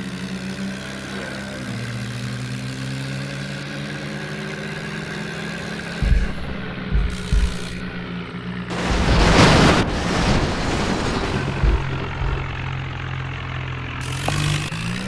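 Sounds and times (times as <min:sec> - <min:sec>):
tractor engine running: 0:00.0 - 0:15.0
loud rushing burst: 0:08.7 - 0:13.1.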